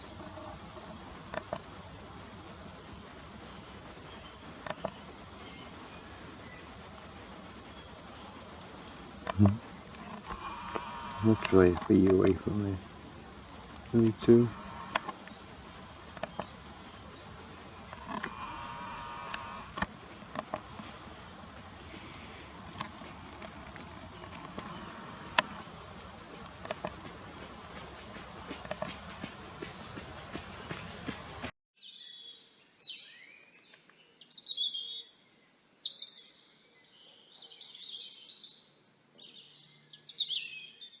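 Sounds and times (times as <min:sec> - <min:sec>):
outdoor hiss: 0:00.0 - 0:31.5
songbird chirps and song: 0:00.0 - 0:41.0
camera zoom motor whirring: 0:09.2 - 0:12.2, 0:14.2 - 0:15.4, 0:17.9 - 0:21.1, 0:21.8 - 0:25.8.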